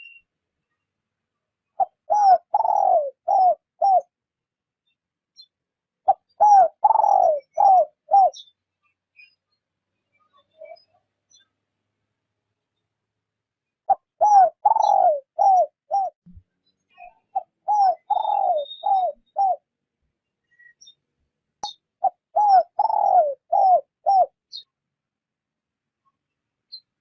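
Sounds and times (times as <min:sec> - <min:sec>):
dove cooing: 0:01.8 - 0:04.1, 0:06.1 - 0:08.4, 0:13.9 - 0:16.2, 0:17.3 - 0:19.6, 0:22.0 - 0:24.4.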